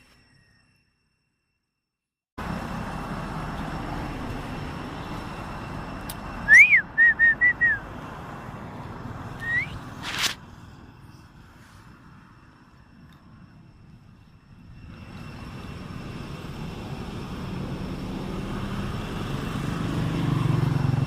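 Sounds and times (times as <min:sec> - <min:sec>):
whistling: 0:06.1 - 0:07.9, 0:09.4 - 0:10.3.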